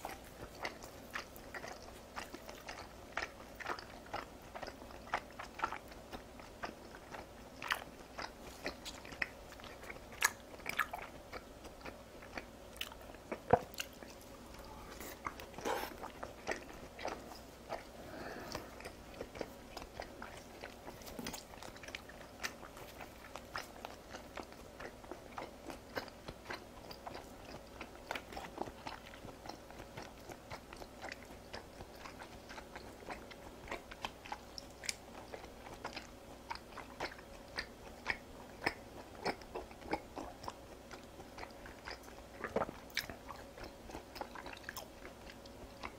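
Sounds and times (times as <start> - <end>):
person chewing raw meat: 0.0 - 45.9.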